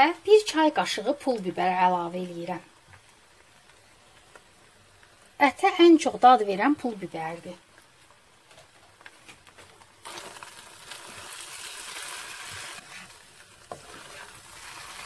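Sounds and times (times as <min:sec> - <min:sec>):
meat frying in a pan: 0:00.0 - 0:15.0
wooden spoon scraping pan: 0:12.4 - 0:15.0.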